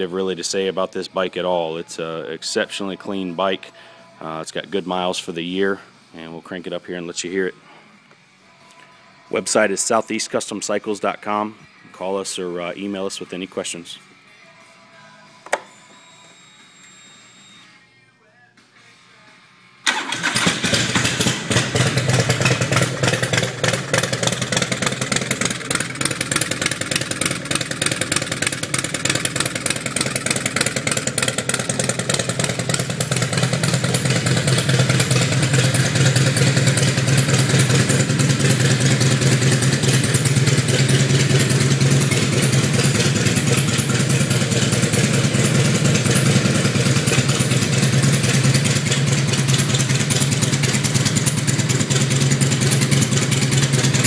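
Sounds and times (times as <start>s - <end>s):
motorcycle engine idling: 20.6s - 54.0s.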